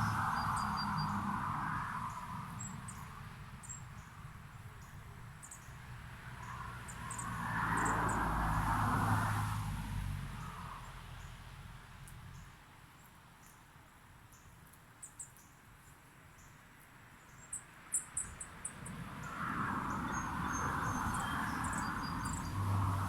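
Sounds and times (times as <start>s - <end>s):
small birds chirping: 19.9s - 22.6s.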